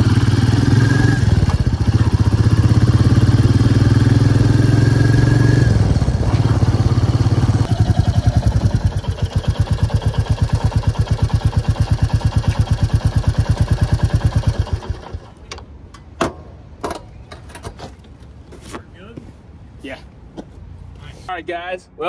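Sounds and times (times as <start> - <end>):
motorcycle engine thumping idle: 1.3 - 3.1, 5.8 - 15.6.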